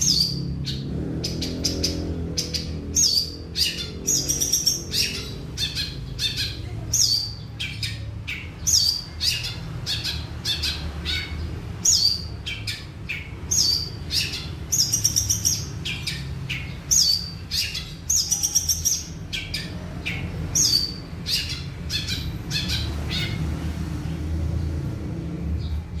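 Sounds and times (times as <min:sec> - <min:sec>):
bird chirping and trilling: 0:00.0 - 0:26.0.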